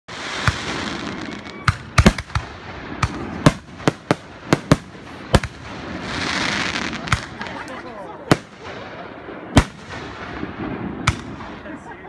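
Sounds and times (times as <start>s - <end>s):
fireworks hiss: 0.1s - 1.5s
fireworks bangs: 0.1s - 12.0s.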